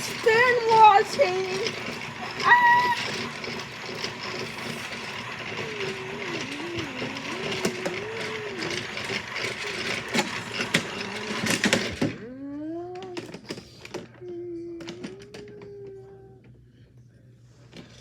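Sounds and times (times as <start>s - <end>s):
toy washing machine motor whirring: 0.0s - 16.6s.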